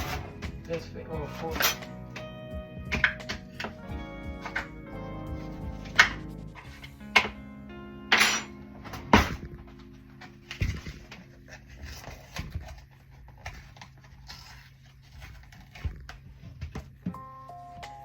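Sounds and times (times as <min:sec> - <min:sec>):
kitchen utensils clattering: 0:00.0 - 0:02.2, 0:08.1 - 0:09.4
soft background music: 0:00.0 - 0:12.8, 0:17.0 - 0:18.0.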